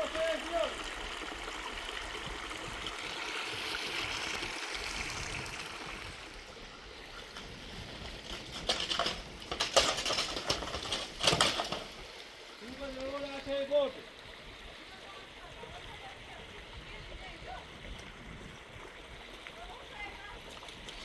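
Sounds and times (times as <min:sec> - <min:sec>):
water running: 0:00.0 - 0:21.0
sharp knocks and clatters: 0:08.2 - 0:12.0.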